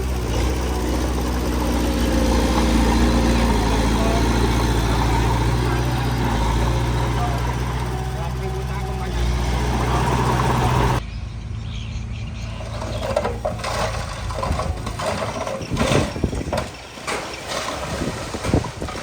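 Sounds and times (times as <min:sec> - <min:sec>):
low engine running: 0:00.0 - 0:15.6
loud diesel engine: 0:00.0 - 0:16.4
machinery knocks and clanks: 0:12.6 - 0:19.0.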